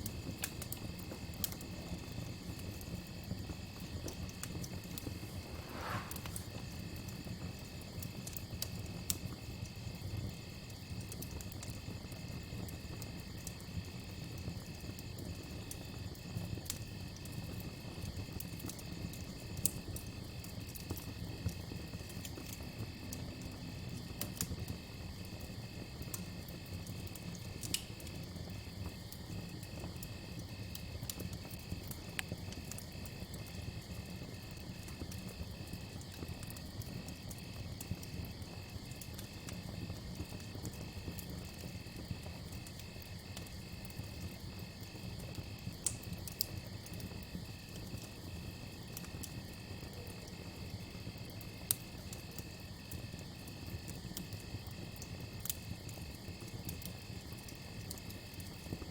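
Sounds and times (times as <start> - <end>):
campfire crackling and popping: 0.0 - 58.9.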